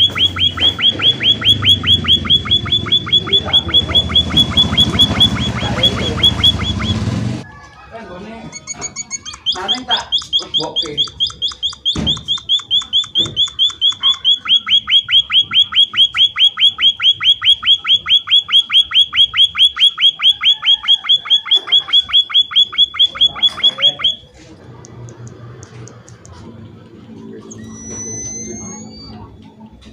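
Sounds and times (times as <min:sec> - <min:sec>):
bird calling sharp falling notes: 0:00.0 - 0:07.1.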